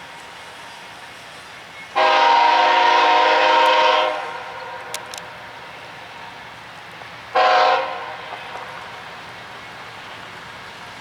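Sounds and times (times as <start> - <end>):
locomotive air horn: 2.0 - 4.6, 7.3 - 8.7.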